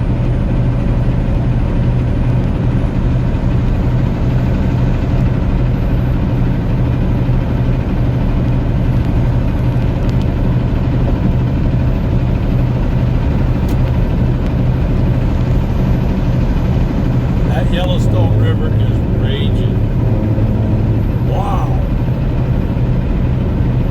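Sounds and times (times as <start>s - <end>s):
truck diesel engine droning: 0.0s - 23.9s
road noise: 16.3s - 23.9s.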